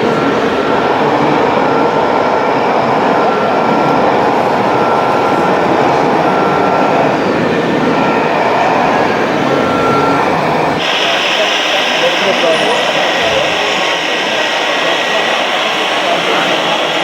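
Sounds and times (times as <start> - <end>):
model construction machines running: 0.0 - 17.0
warning beeper: 9.4 - 17.0.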